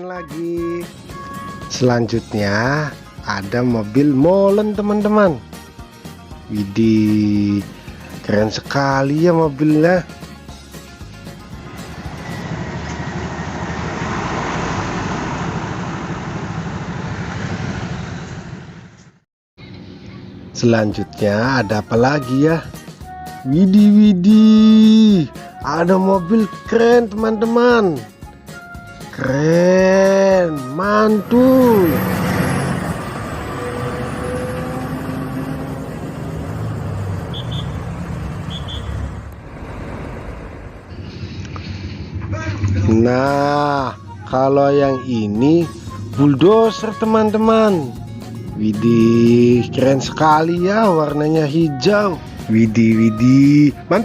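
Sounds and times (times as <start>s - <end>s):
truck engine running: 10.1s - 20.6s, 30.7s - 51.3s.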